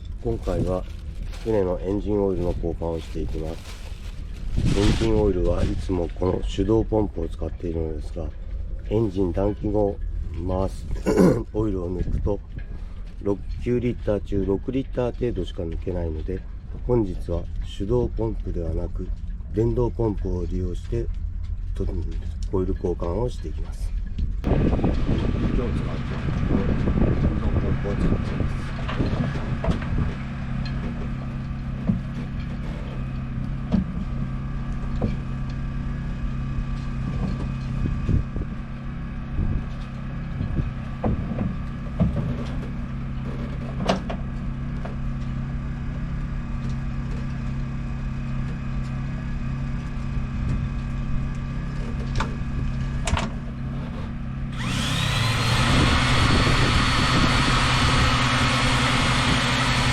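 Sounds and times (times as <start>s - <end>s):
steady low hum: 0.0s - 59.9s
electric pump motor running: 24.4s - 59.9s.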